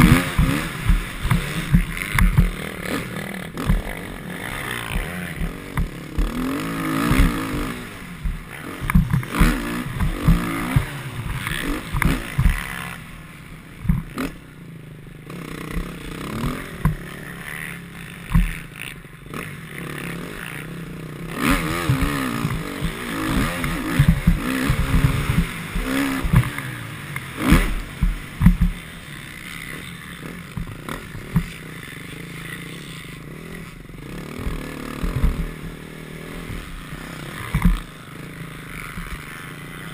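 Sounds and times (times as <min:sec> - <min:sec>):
sharp knocks and thumps: 0:00.0 - 0:13.0, 0:13.8 - 0:14.2, 0:18.3 - 0:18.6, 0:21.5 - 0:28.9, 0:30.5 - 0:31.6, 0:34.4 - 0:35.8, 0:36.4 - 0:38.0
motorcycle engine revving: 0:00.0 - 0:39.9.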